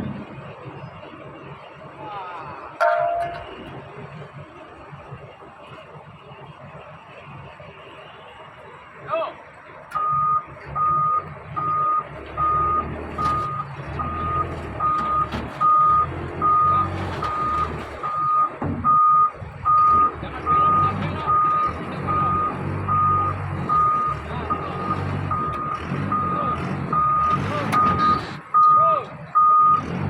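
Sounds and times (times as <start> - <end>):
diesel engine rumbling: 0.0 - 30.0
reversing alarm beeping: 9.9 - 29.9.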